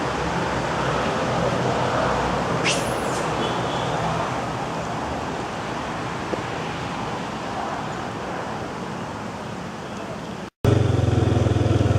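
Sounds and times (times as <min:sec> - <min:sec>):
distant traffic: 0:00.0 - 0:11.9
wind: 0:00.0 - 0:11.9
small engine running: 0:10.7 - 0:11.9.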